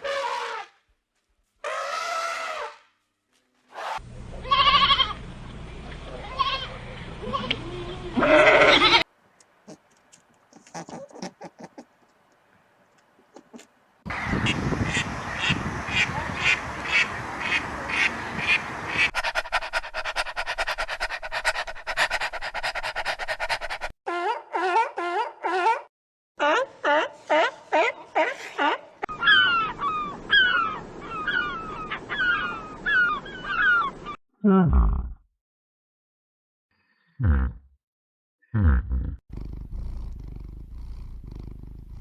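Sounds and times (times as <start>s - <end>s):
rapid repeated animal calls: 9.7s - 12.0s, 13.2s - 24.4s.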